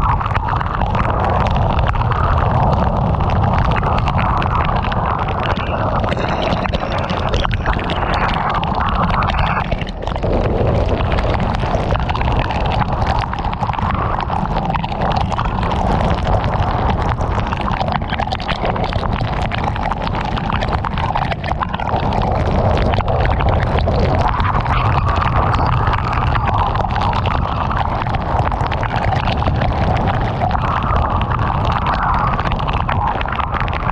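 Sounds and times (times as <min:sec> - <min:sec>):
wind and road noise rumble: 0:00.0 - 0:33.9.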